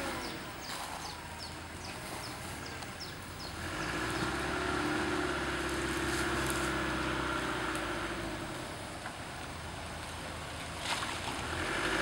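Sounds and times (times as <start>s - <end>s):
engine droning under load: 0.0s - 12.0s.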